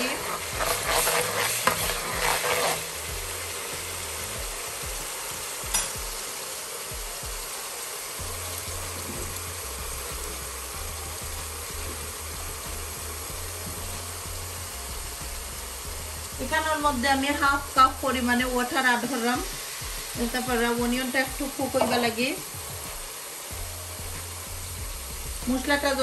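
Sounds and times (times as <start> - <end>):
onions sizzling in oil: 0.0 - 26.0
metal spoon scraping a pot: 0.1 - 2.8.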